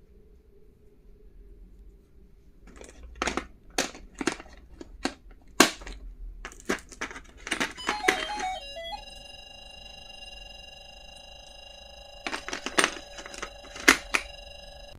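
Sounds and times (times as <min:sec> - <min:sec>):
electronic melody: 0:07.8 - 0:14.9.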